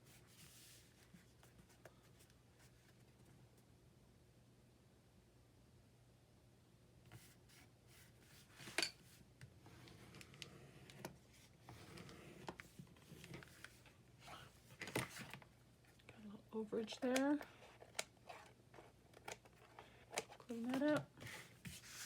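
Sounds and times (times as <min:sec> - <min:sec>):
paper rustling and rubbing: 0:00.0 - 0:03.2, 0:17.5 - 0:22.0.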